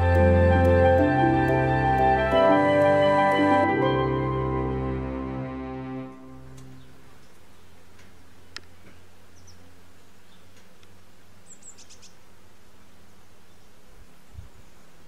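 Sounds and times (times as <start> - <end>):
outdoor background hiss: 0.0 - 15.0
high bird chirps: 11.4 - 12.2.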